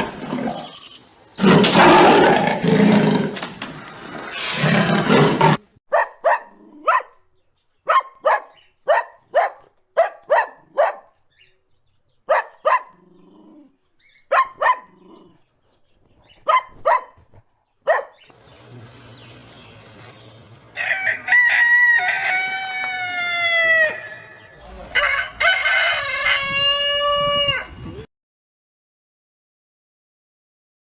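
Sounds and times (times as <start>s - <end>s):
dog barking: 5.9s - 11.2s, 12.2s - 13.2s, 14.3s - 15.4s, 16.4s - 18.2s.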